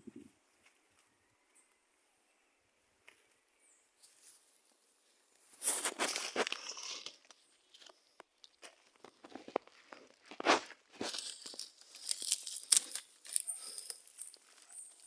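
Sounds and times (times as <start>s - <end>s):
crackling tearing rustle: 5.6s - 15.0s.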